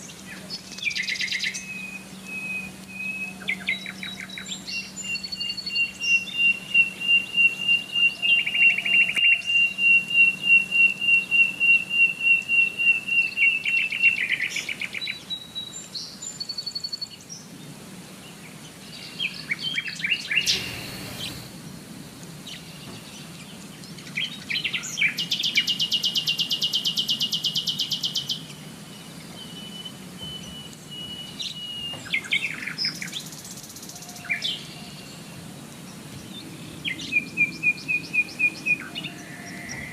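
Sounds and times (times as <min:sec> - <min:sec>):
songbirds singing and chirping: 0:00.0 - 0:39.9
bird trilling: 0:00.8 - 0:14.5, 0:19.6 - 0:21.6.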